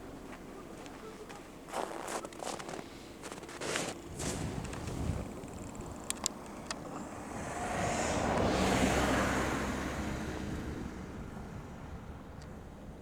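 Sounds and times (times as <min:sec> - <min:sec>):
airplane passing overhead: 0:00.0 - 0:13.0
sharp clicks: 0:05.4 - 0:06.8.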